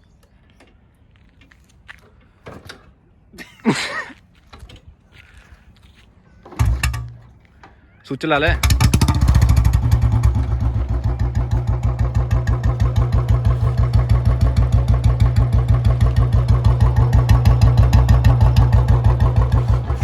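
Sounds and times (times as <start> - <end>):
motorcycle engine idling: 6.5 - 7.4, 8.4 - 20.0.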